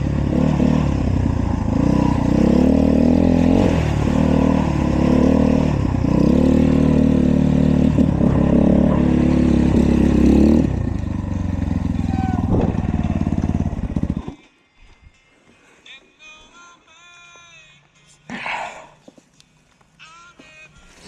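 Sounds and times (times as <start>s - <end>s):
dirt bike engine revving: 0.0s - 14.4s.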